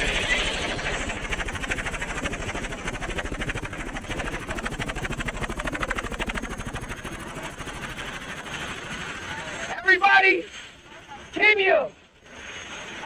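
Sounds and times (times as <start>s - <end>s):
helicopter rotor chopping: 0.0s - 13.0s.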